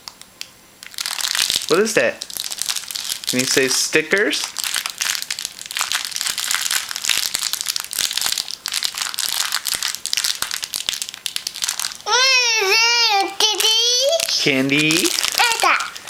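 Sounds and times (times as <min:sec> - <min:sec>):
wrapper crumpling: 0:00.8 - 0:16.0
young child squealing: 0:12.1 - 0:13.4.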